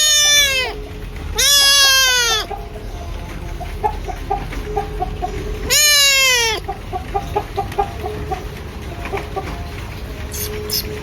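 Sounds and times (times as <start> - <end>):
loud falling animal call: 0.0 - 0.8, 1.4 - 2.5, 5.6 - 7.3
chicken clucking: 0.0 - 11.0.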